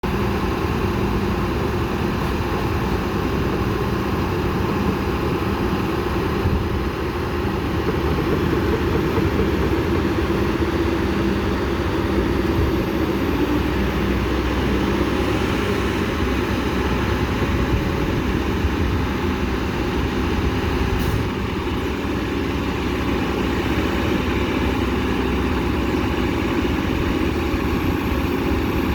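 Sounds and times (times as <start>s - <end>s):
excavator diesel engine droning: 0.0s - 28.9s.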